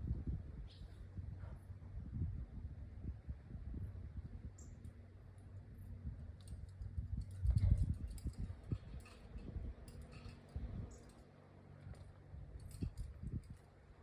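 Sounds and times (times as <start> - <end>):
low knocks and rumble: 6.0 - 10.9.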